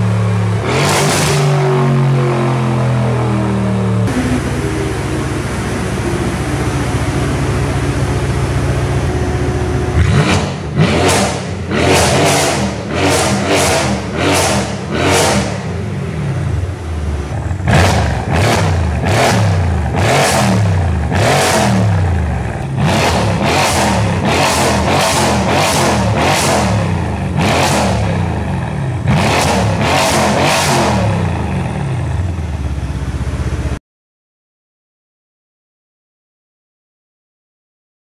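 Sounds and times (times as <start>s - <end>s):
car engine revving: 0.0s - 32.4s
exhaust cracks: 4.0s - 15.7s.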